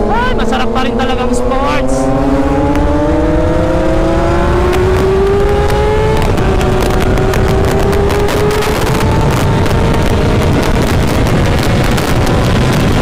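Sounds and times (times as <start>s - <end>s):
motorcycle engine accelerating: 0.0s - 13.0s
rumbling wind noise: 0.0s - 13.0s.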